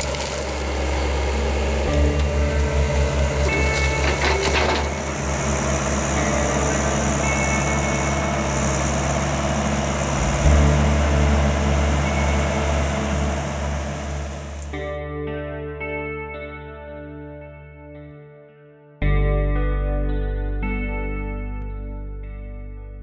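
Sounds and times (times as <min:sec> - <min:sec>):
excavator engine running: 0:00.0 - 0:14.8
high squeals and clatter: 0:00.0 - 0:14.8.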